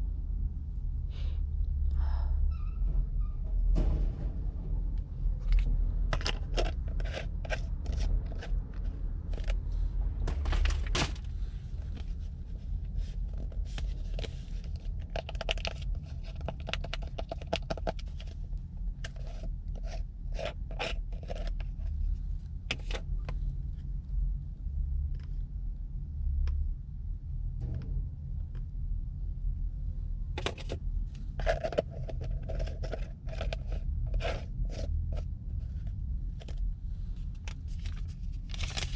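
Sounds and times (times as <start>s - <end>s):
steady low hum: 0.0s - 38.9s
hands scraping and crinkling materials: 5.4s - 18.4s, 19.0s - 22.0s, 30.4s - 36.6s, 37.2s - 38.9s.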